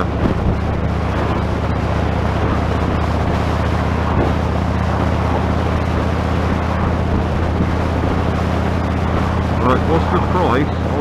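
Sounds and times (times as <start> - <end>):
motorcycle engine hum: 0.0 - 11.0
wind hissing on microphone: 0.0 - 11.0.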